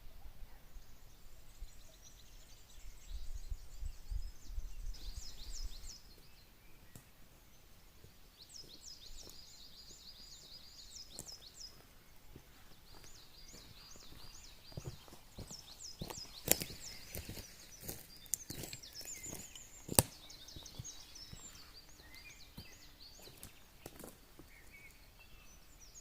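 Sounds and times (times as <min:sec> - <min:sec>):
small bird singing: 0:00.0 - 0:26.0.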